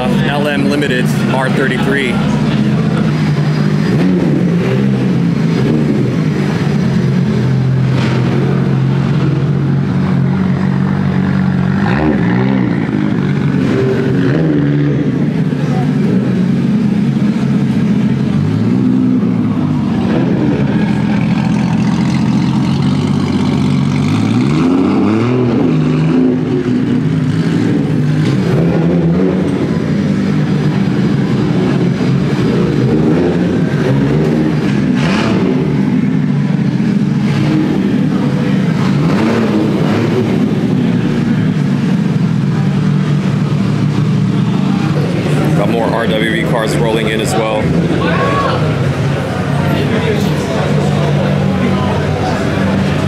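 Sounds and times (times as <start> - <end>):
car engines revving: 0.0 - 53.0.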